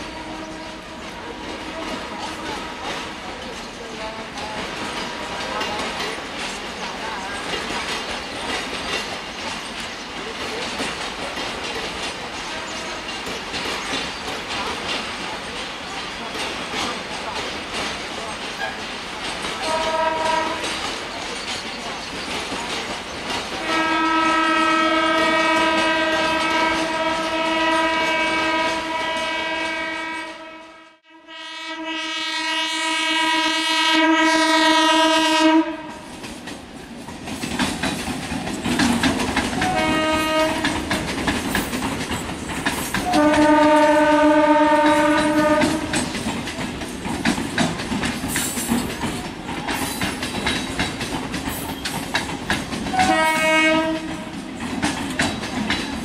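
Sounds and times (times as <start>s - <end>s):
train horn blasts: 0.0s - 3.2s, 19.6s - 20.9s, 23.6s - 36.2s, 39.6s - 40.9s, 43.0s - 46.0s, 52.9s - 54.3s
train wheels clattering: 0.0s - 30.5s, 34.8s - 56.0s.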